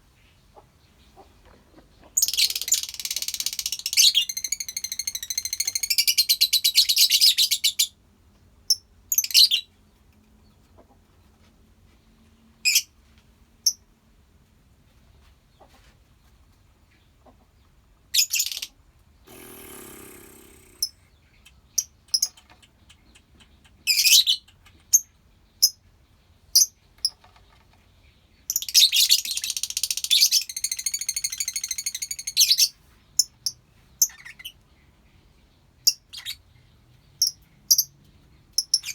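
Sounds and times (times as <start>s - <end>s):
lovebirds chattering: 19.3s - 25.1s.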